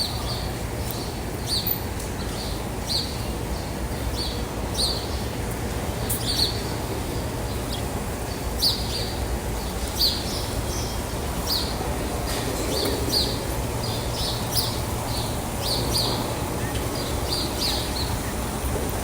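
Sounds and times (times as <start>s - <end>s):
bird chirping: 13.1s - 18.4s.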